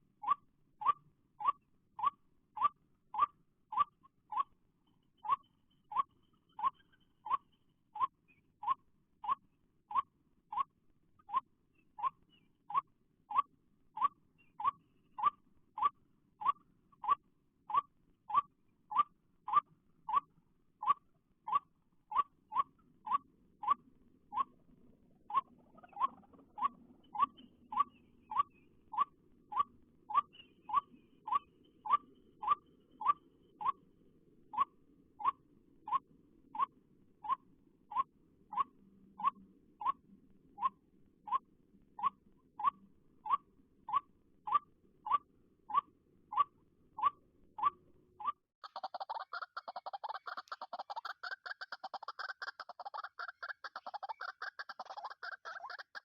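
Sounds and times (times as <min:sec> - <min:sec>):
waterhen call: 0:46.4 - 0:56.0.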